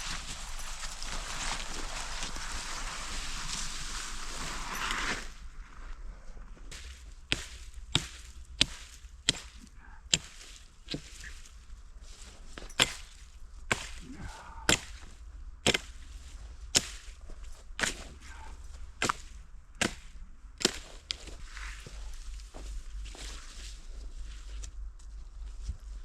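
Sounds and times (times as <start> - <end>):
blade chopping firewood: 6.7 - 11.5, 12.3 - 17.2, 17.8 - 21.4.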